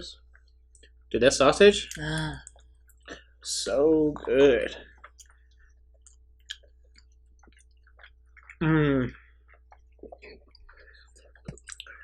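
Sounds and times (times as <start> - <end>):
soft chewing: 0.2 - 1.1, 1.8 - 3.4, 4.1 - 12.0
lip smacks: 5.0 - 8.6, 9.4 - 12.0.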